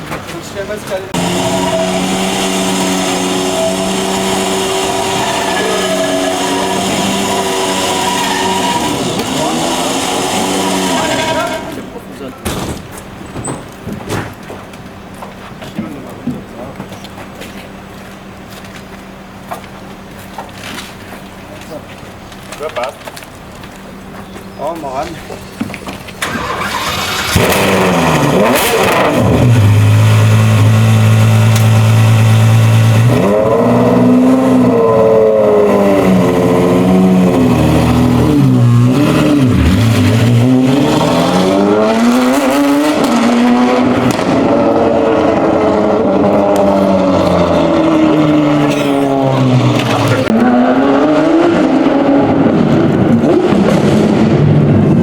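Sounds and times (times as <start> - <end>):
sports car engine revving: 1.1 - 12.0, 26.2 - 55.0.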